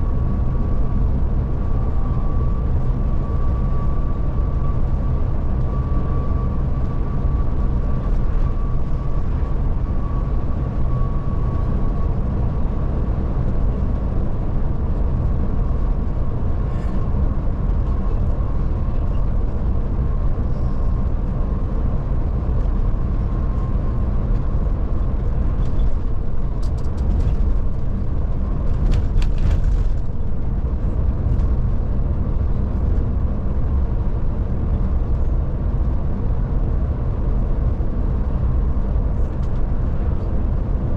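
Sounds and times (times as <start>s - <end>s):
coach engine and road drone: 0.0s - 40.9s.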